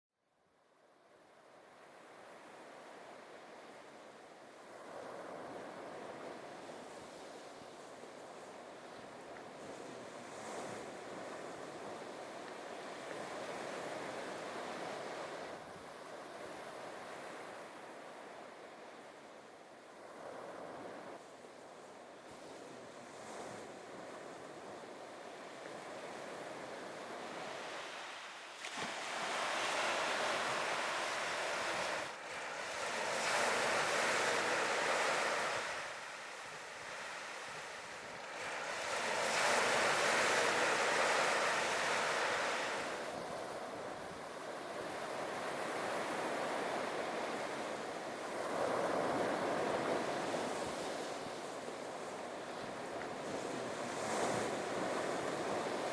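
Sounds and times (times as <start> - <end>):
wind on microphone: 19.9 - 55.9
surf breaking on beach: 25.9 - 55.9.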